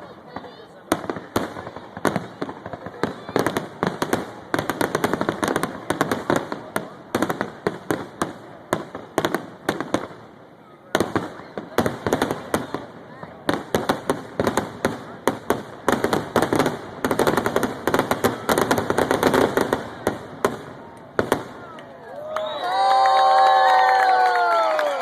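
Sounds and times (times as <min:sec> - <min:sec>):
fireworks bursting with sharp bangs: 0:00.0 - 0:21.9.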